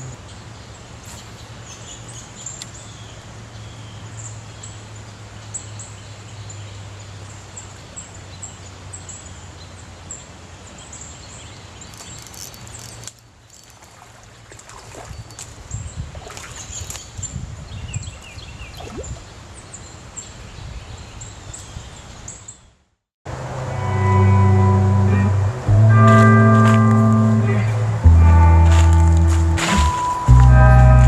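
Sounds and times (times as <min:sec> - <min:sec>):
faint clicks and rustles: 0:11.8 - 0:15.6
steady low rumble: 0:23.7 - 0:31.0.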